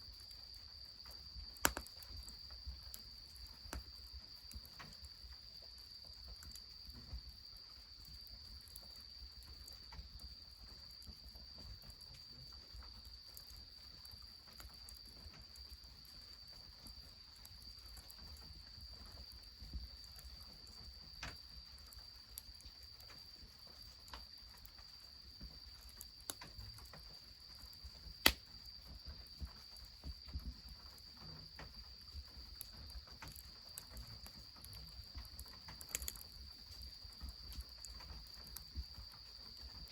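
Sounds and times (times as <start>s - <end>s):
wood fire crackling: 0.1s - 39.9s
fire popping: 1.1s - 5.2s, 25.4s - 29.4s, 30.1s - 38.9s.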